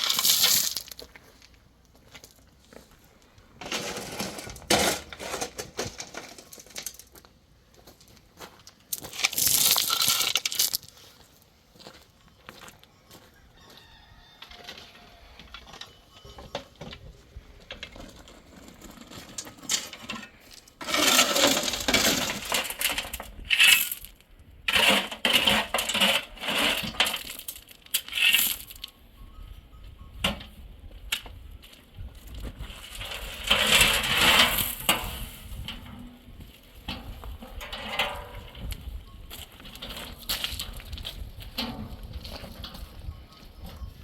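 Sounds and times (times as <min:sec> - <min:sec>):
pebbles clattering and scraping: 0:00.0 - 0:02.5, 0:03.5 - 0:11.4, 0:17.6 - 0:28.9, 0:32.2 - 0:43.8.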